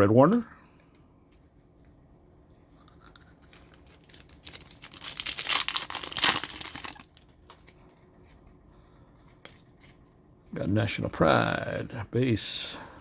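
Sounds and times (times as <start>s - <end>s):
foil pack tearing and crinkling: 2.9s - 7.7s.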